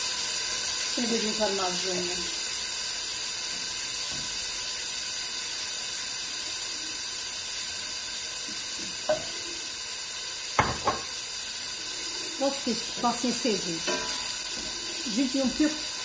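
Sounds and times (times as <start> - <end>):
food sizzling in hot oil: 0.0 - 16.0
sharp knock: 10.6 - 11.0.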